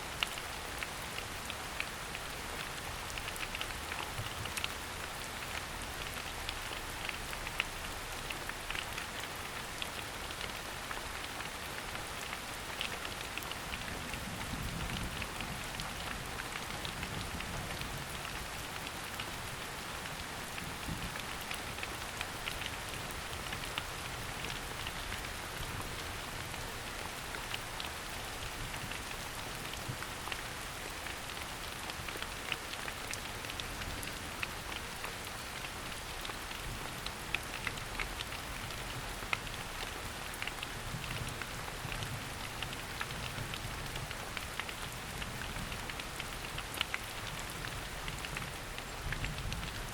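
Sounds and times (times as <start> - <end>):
rain pattering on leaves: 0.0 - 49.9.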